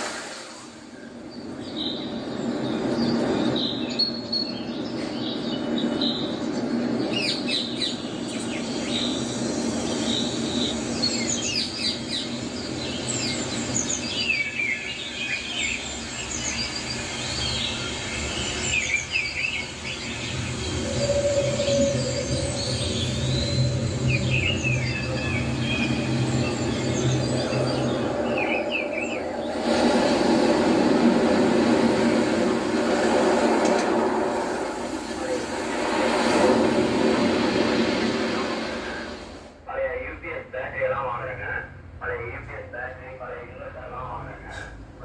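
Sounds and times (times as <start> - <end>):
steady hum: 0.0 - 45.0
small birds chirping: 0.8 - 33.3
low rumbling background: 8.9 - 45.0.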